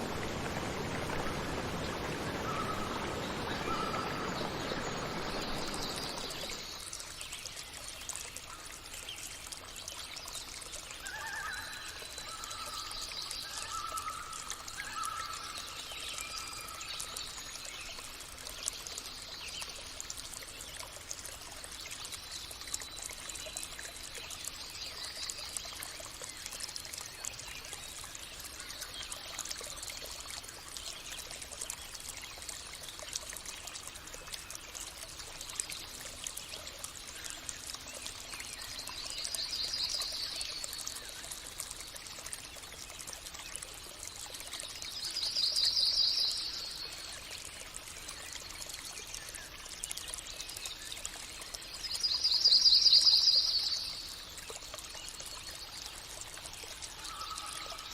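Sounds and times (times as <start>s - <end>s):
birds chirping: 0.0s - 6.9s
water trickling and splashing: 0.0s - 57.9s.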